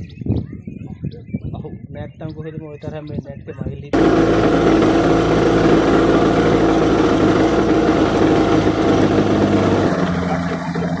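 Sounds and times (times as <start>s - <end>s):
vehicle engine running: 4.0s - 11.0s.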